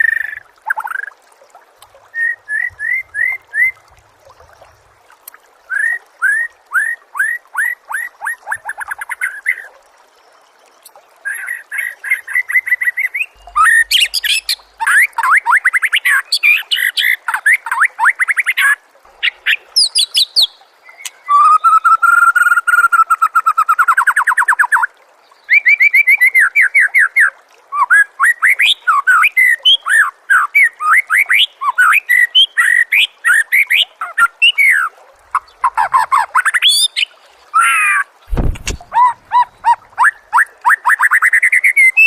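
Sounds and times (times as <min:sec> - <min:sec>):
songbird singing: 0:02.1 - 0:04.9, 0:10.3 - 0:17.8, 0:18.6 - 0:22.3
short deep falling sound: 0:38.3 - 0:39.1.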